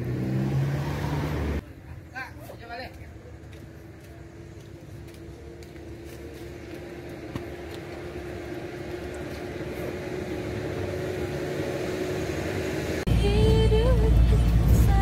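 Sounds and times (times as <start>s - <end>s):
road noise: 0.0s - 15.0s
vehicle engine hum: 0.0s - 15.0s.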